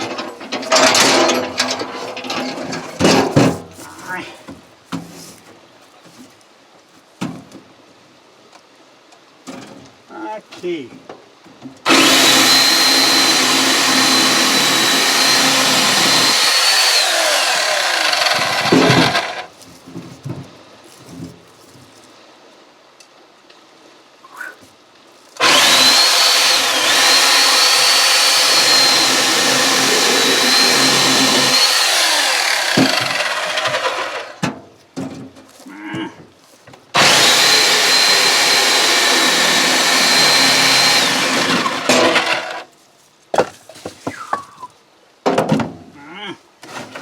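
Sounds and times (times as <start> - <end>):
electric chainsaw cutting wood: 11.9 - 19.5, 25.4 - 34.4, 37.0 - 42.7.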